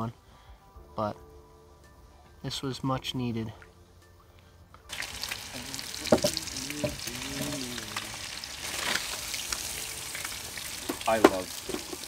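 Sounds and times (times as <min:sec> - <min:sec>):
food frying in hot oil: 0:04.9 - 0:12.0.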